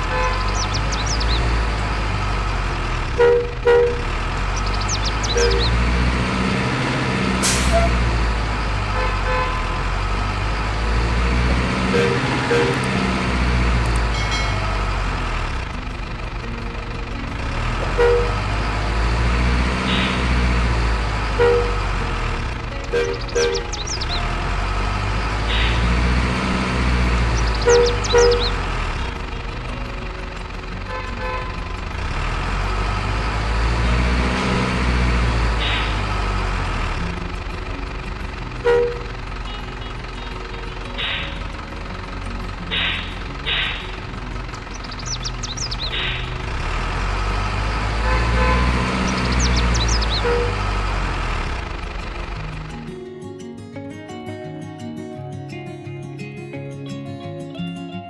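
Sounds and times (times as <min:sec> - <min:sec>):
truck engine rumbling: 0:00.0 - 0:53.8
high chirping squeals: 0:04.6 - 0:05.8, 0:27.3 - 0:28.6, 0:44.7 - 0:46.4, 0:48.6 - 0:50.7
short horn toots: 0:07.4 - 0:08.1.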